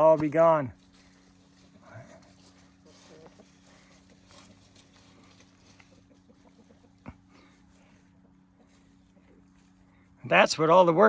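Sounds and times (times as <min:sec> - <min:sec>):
chickens scratching and pecking: 0:00.0 - 0:11.0
steady low hum: 0:00.0 - 0:11.0
chickens clucking softly: 0:02.0 - 0:09.9.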